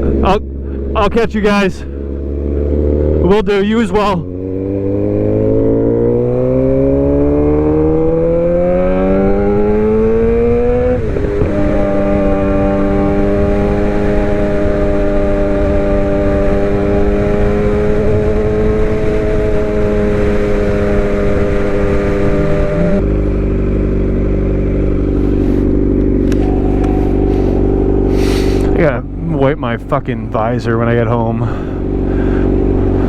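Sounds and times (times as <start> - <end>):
wind rushing over microphone: 0.0 - 29.2
motorcycle engine cruising: 0.0 - 33.0.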